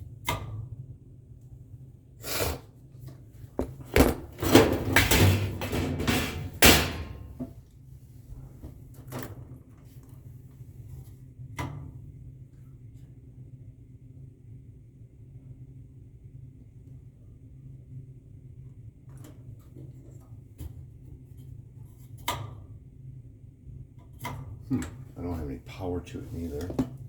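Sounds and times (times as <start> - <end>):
hard objects knocking and rattling: 3.5 - 7.6.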